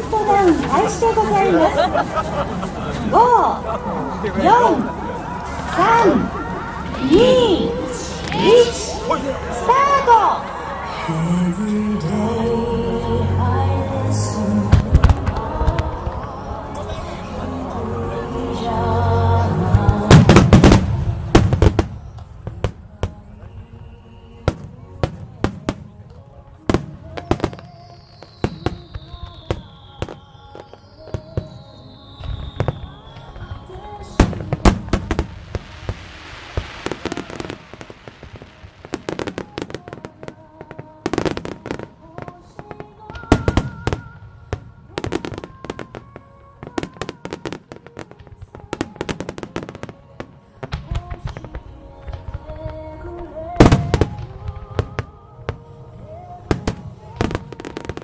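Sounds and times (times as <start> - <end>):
fireworks crackling: 0.0 - 58.0
music on loudspeakers: 7.0 - 20.8
fireworks booming: 14.6 - 17.7, 19.7 - 58.0
fireworks whistles: 26.9 - 52.3.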